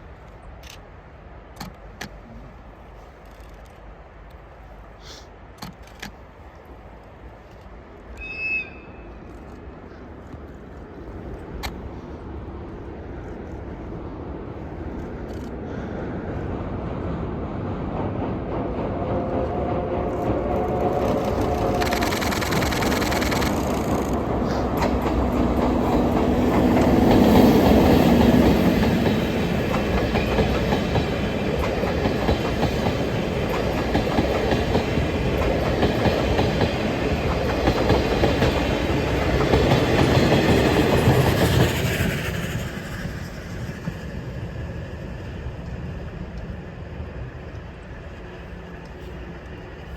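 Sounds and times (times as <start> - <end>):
train wheels clacking over rail joints: 18.5 - 44.1.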